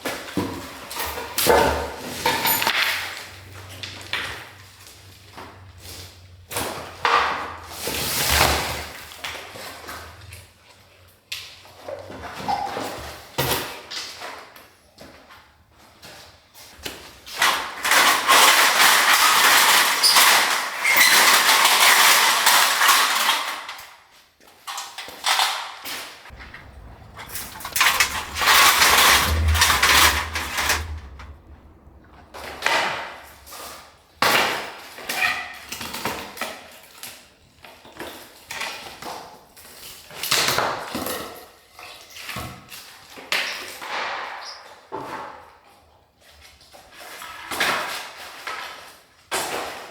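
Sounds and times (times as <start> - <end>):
rubble rattling and clattering: 26.3 - 32.3.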